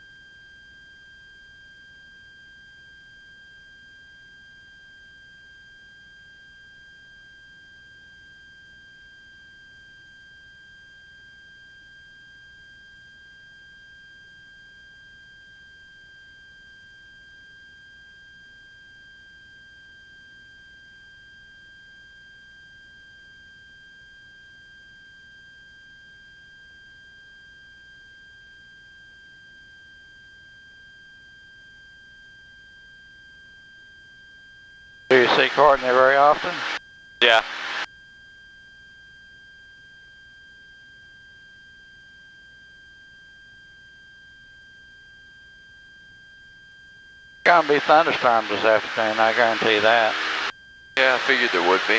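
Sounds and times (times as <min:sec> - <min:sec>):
high-pitched electronic whine: 0:35.1 - 0:37.9, 0:47.5 - 0:51.9.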